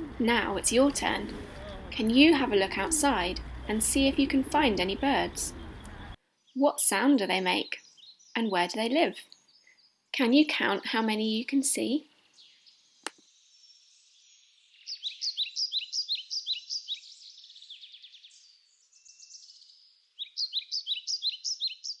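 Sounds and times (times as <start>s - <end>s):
small songbird singing: 0.0s - 6.6s, 7.4s - 8.4s, 12.3s - 22.0s.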